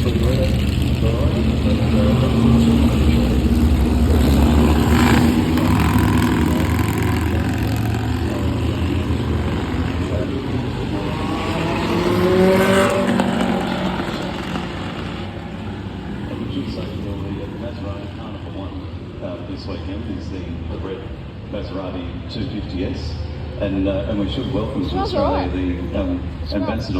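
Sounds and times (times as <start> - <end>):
racing car engines: 0.0 - 26.9.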